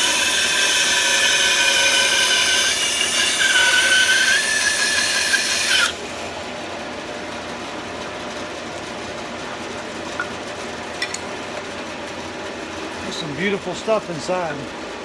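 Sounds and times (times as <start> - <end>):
bandsaw cutting log: 0.0 - 6.0
bandsaw running: 0.0 - 6.2.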